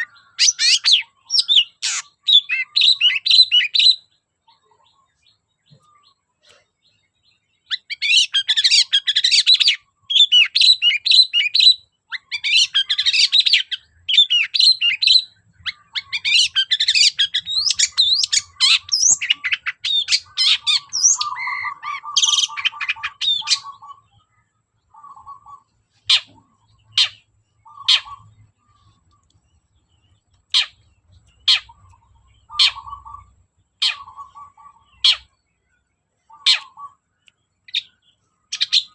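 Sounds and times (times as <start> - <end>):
bird chattering song: 0.0 - 38.9
bird harsh buzzing calls: 12.1 - 24.2, 30.5 - 35.4.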